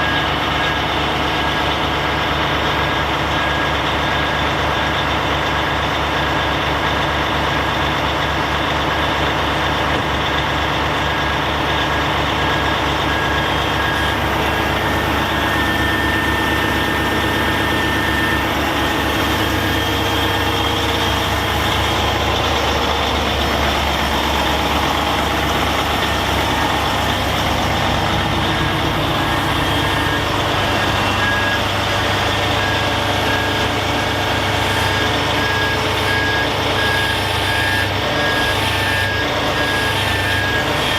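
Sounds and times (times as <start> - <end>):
diesel truck engine running: 0.0 - 40.9
high beep: 12.4 - 40.9.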